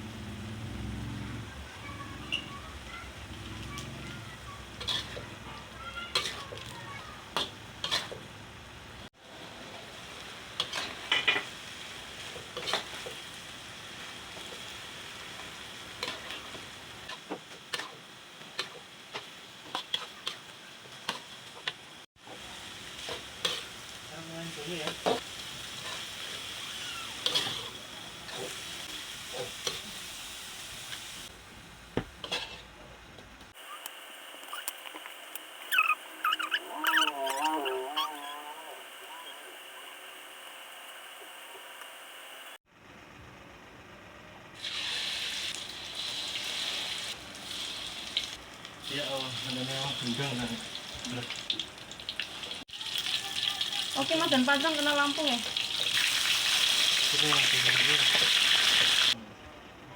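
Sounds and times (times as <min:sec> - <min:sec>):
food sizzling in hot oil: 0:01.6 - 0:31.3, 0:44.6 - 0:59.2.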